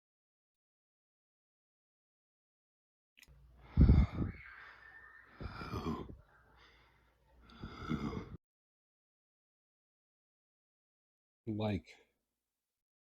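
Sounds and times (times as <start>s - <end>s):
person breathing loudly: 3.6s - 8.4s.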